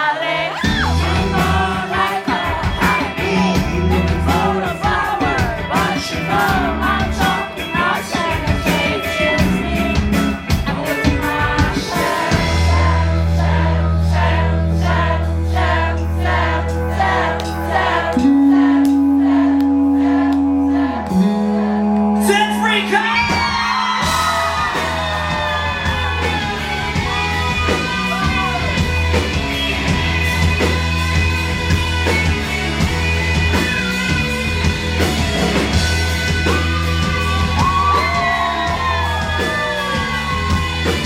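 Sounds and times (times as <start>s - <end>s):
live rock band: 0.0s - 41.0s
held bass notes: 0.7s - 41.0s
man singing: 0.8s - 9.9s.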